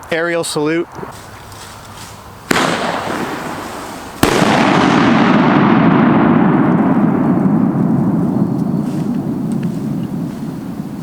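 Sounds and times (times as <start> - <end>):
firework salute crack: 2.5 - 5.0
rumbling echo: 2.5 - 11.0.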